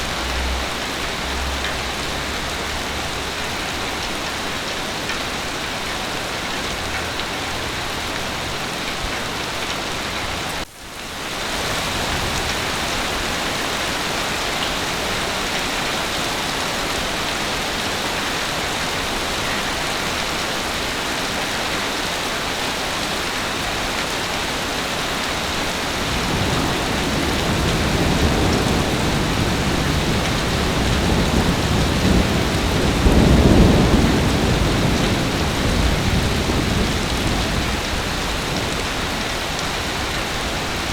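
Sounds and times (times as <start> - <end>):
heavy rain falling: 0.0 - 40.9
low thunder roll: 25.9 - 39.2.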